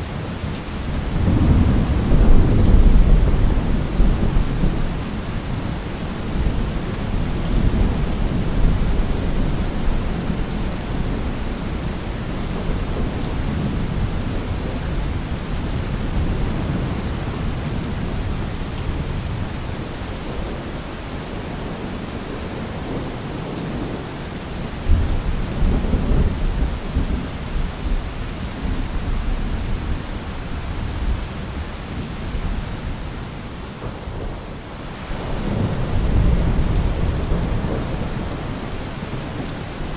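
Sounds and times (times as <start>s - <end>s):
heavy rain: 0.0s - 39.9s
rolling thunder: 1.0s - 11.3s.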